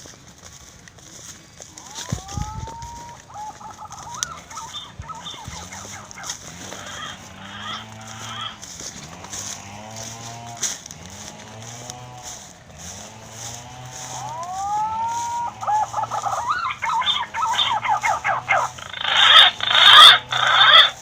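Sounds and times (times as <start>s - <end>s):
low arched animal call: 1.7s - 8.8s, 13.9s - 21.0s.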